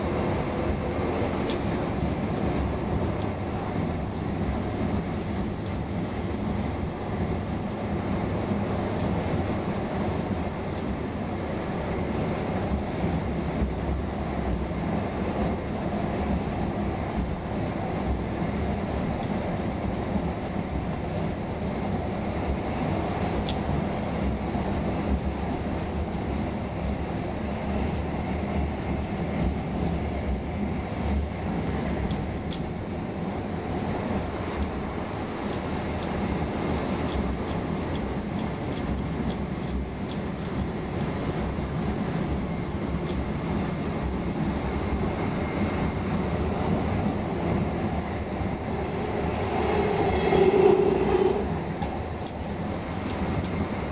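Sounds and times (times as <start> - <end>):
train wheels rumbling on rail: 0.0 - 53.9
high squeal: 47.1 - 52.6.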